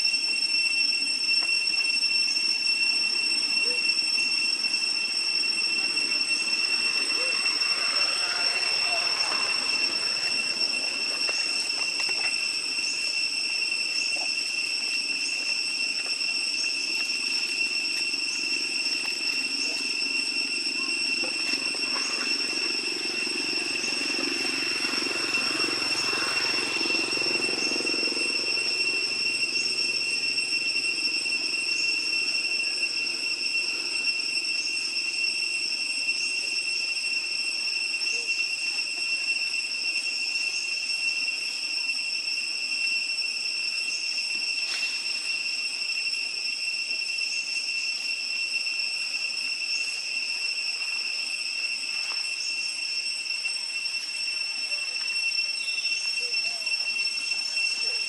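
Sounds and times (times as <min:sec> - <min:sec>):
high-pitched insect drone: 0:00.0 - 0:58.0.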